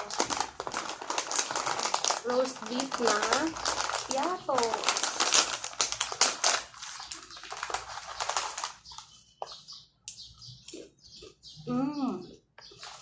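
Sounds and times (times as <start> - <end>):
plastic snack bag crinkling: 0.0 - 9.8, 12.6 - 13.0.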